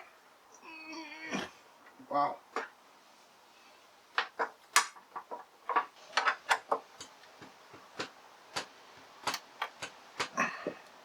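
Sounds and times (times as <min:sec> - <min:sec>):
hand tools clicking on plastic: 0:04.2 - 0:11.0.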